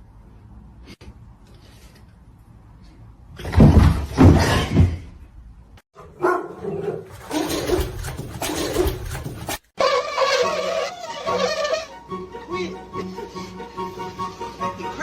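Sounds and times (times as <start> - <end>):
dog vocalising roughly: 6.2 - 9.6.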